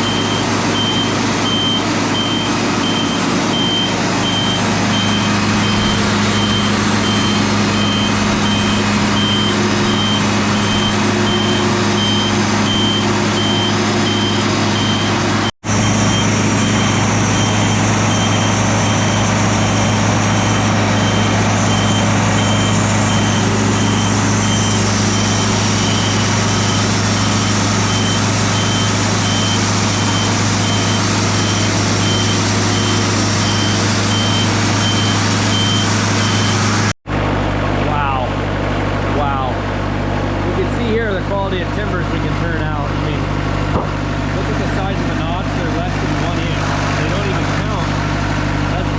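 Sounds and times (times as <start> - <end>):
reversing alarm beeping: 0.0 - 36.9
heavy diesel machinery running: 0.0 - 48.9.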